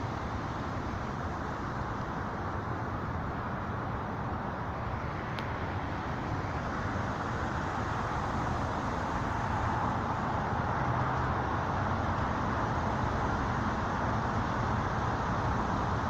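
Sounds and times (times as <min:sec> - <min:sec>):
outdoor background rumble and hiss: 0:00.0 - 0:16.0
faint tick: 0:05.3 - 0:05.5.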